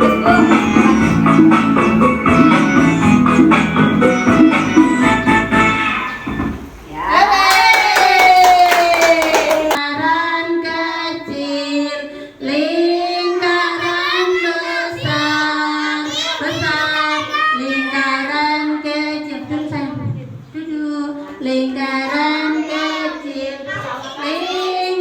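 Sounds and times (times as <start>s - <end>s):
children singing together: 0.0s - 6.4s, 9.7s - 19.4s, 21.0s - 25.0s
woman singing: 9.1s - 16.1s.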